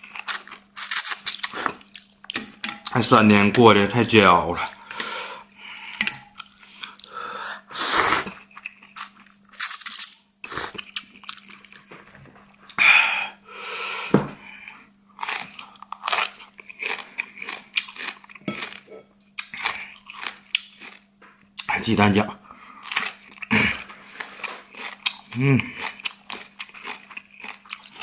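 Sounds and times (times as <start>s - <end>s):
person chewing and biting food: 0.0s - 2.3s, 14.6s - 21.7s, 22.8s - 28.0s.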